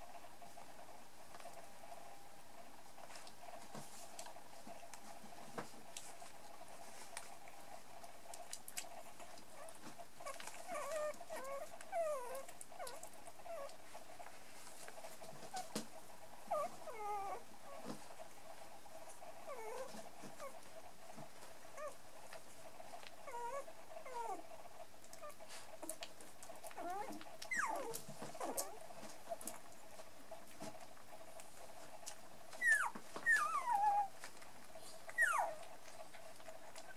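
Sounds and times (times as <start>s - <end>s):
faint steady hum: 0.0s - 36.9s
puppies whimpering and squeaking: 9.5s - 13.8s, 16.5s - 17.9s, 19.5s - 20.6s, 21.8s - 22.0s, 23.2s - 24.4s, 26.7s - 28.8s, 32.5s - 34.2s, 34.8s - 36.1s.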